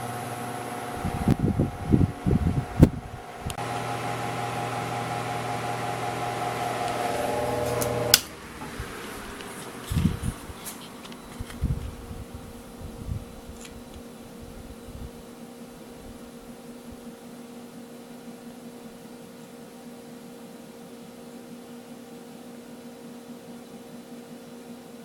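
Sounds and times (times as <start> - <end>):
electric fan motor hum: 0.0 - 22.9
fan switch click: 6.8 - 8.8.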